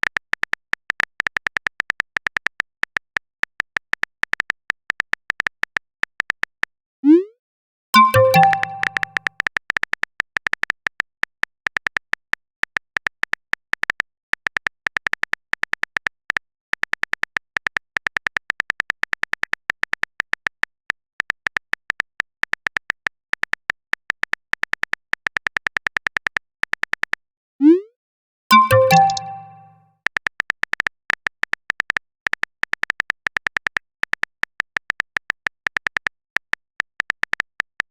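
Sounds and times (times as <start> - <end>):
rapid keyboard typing: 8.0 - 9.2.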